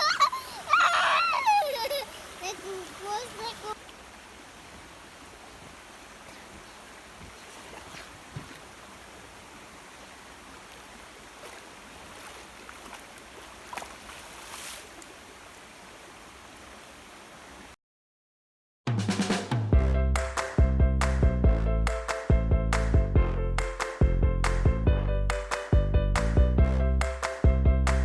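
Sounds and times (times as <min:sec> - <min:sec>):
river water rushing: 0:00.0 - 0:17.8.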